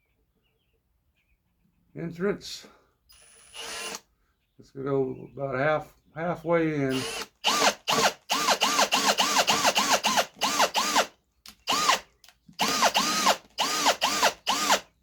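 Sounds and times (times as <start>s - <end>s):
electric drill whining: 3.1s - 4.0s, 6.9s - 14.9s.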